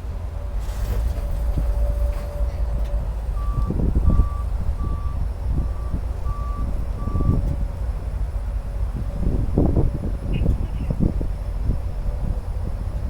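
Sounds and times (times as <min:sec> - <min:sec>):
steady low rumble: 0:00.0 - 0:13.0
vehicle backup alarm beeping: 0:01.6 - 0:07.6.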